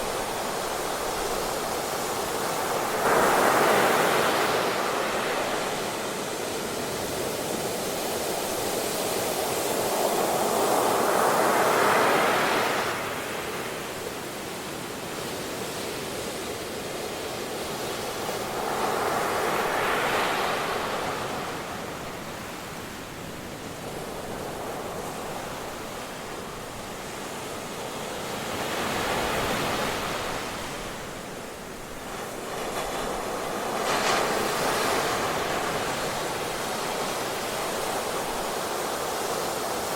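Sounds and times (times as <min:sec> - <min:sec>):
ocean waves breaking: 0:28.4 - 0:39.9.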